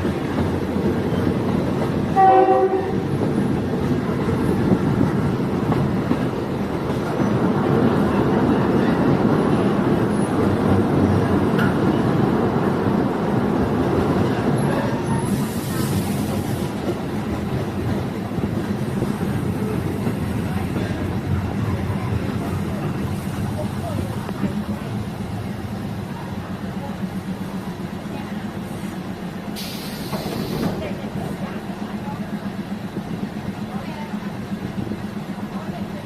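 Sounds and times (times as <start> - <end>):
diesel train running on track: 0.0 - 36.0
train horn blast: 2.1 - 3.1
high hiss: 29.5 - 30.8.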